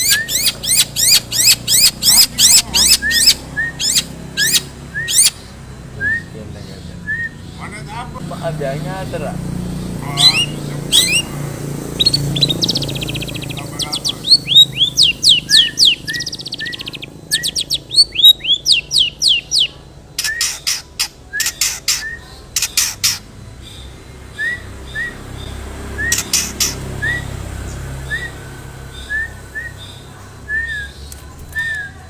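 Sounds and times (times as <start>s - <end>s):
shrike singing mimicry song: 0.0s - 32.0s
harsh clicking bird notes: 9.6s - 23.3s, 25.4s - 27.4s.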